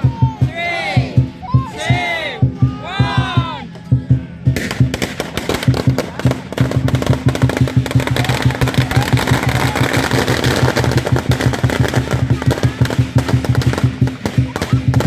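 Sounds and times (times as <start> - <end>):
drum beating quickly: 0.0 - 15.0
firecrackers crackling: 4.4 - 15.0.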